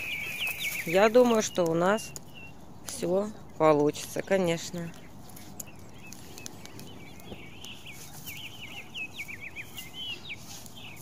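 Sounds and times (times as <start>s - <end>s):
small songbird twittering: 0.0s - 3.2s, 4.2s - 11.0s.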